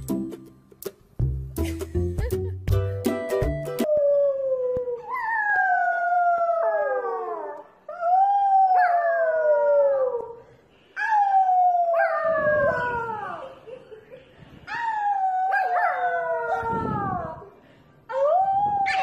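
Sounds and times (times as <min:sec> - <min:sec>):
puppy howling: 0:14.7 - 0:17.4, 0:18.1 - 0:19.0.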